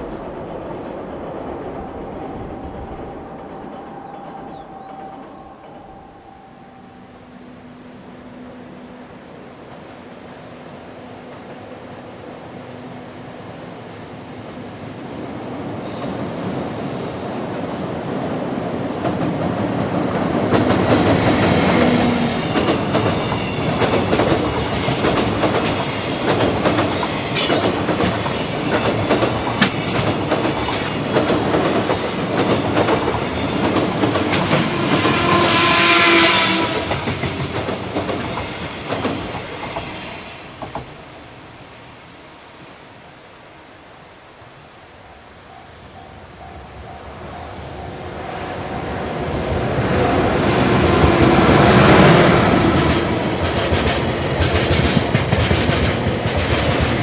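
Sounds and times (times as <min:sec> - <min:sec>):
freight train rumble: 0:00.0 - 0:57.0
high ringing tone: 0:02.5 - 0:07.9
wheels clacking over rail joints: 0:17.5 - 0:41.0, 0:50.9 - 0:57.0.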